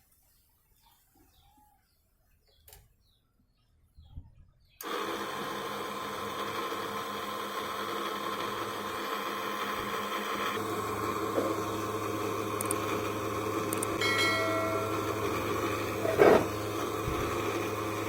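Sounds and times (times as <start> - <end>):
small motor humming: 4.8 - 18.0.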